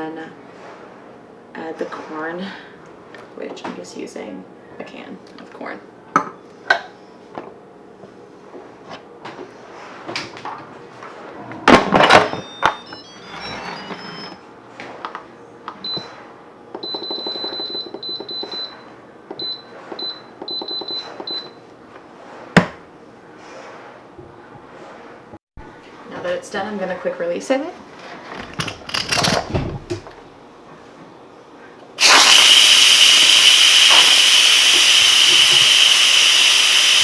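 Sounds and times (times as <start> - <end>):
short high beeps: 12.2 - 14.4.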